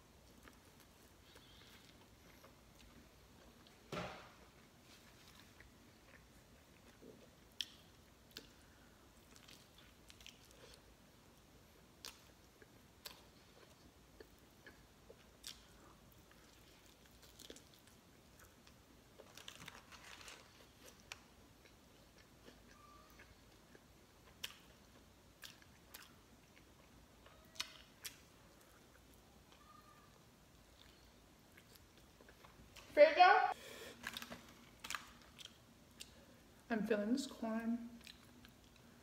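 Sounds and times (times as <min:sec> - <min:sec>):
faint wet chewing clicks: 0:21.0 - 0:29.6, 0:38.0 - 0:39.0.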